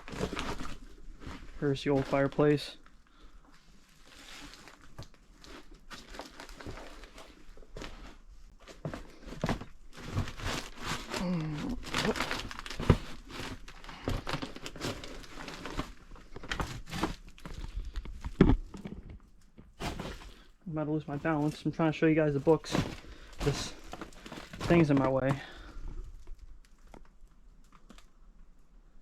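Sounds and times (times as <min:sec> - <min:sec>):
paper crinkling and crunching: 0:00.0 - 0:02.8, 0:03.8 - 0:19.1, 0:19.8 - 0:20.5, 0:21.1 - 0:28.1.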